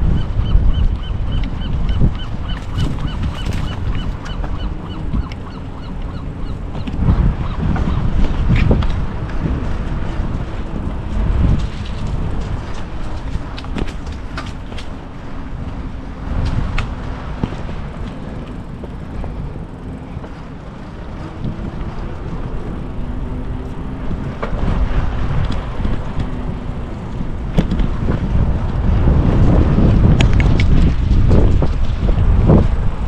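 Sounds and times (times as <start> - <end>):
wind rushing over microphone: 0.0 - 33.0
road and traffic noise: 1.8 - 7.3, 10.0 - 29.5.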